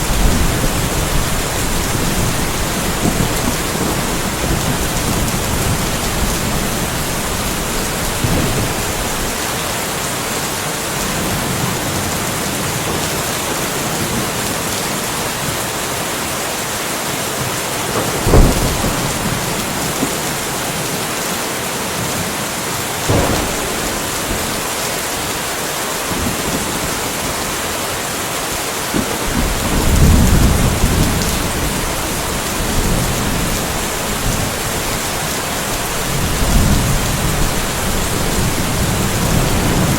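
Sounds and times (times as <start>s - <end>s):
deep thunder rumble: 0.0s - 9.4s, 18.0s - 20.5s, 23.1s - 27.4s, 29.0s - 39.9s
sharp thunder cracks: 0.0s - 9.4s, 18.0s - 20.2s, 23.1s - 25.4s
steady rain: 0.0s - 39.9s.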